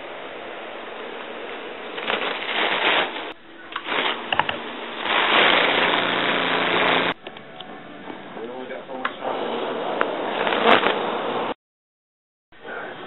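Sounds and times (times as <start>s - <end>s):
small electric motor running: 5.0s - 7.2s.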